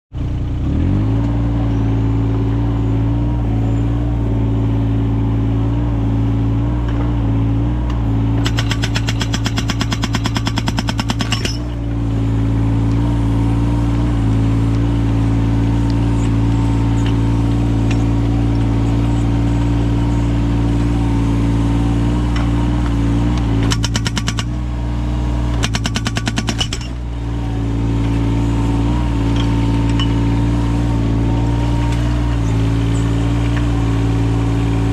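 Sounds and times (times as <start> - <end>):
diesel engine running: 0.1 - 34.9
hydraulic breaker hammering: 8.4 - 11.8, 23.6 - 24.6, 25.5 - 27.1.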